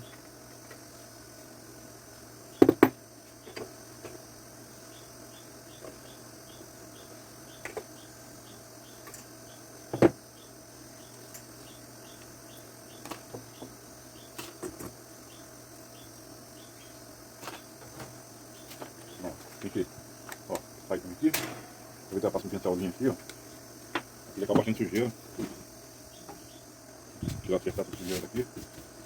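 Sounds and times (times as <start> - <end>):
clicks and knocks of fan parts: 17.4 - 21.8.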